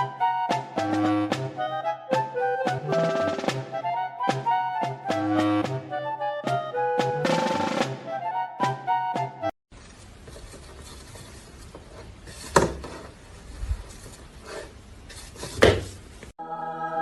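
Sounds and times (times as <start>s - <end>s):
held musical tone: 0.0s - 9.6s
music: 0.0s - 9.6s, 16.4s - 17.0s.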